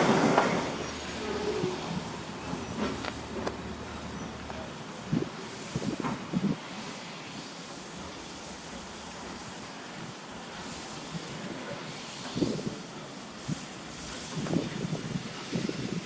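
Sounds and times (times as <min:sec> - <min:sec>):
wind buffeting microphone: 0:05.0 - 0:06.7, 0:12.3 - 0:16.0.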